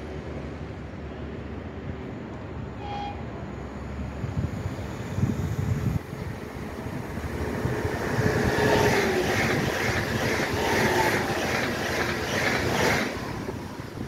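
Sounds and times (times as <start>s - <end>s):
faint train whine: 0.0s - 14.0s
train wheels clacking over rail joints: 7.0s - 14.0s.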